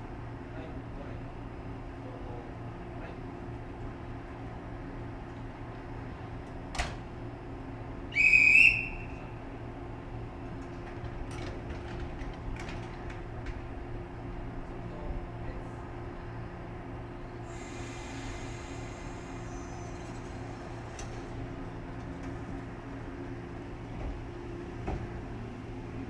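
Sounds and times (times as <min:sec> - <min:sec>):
high-pitched whistle blast: 0:08.2 - 0:09.2
electric train humming: 0:15.9 - 0:26.0.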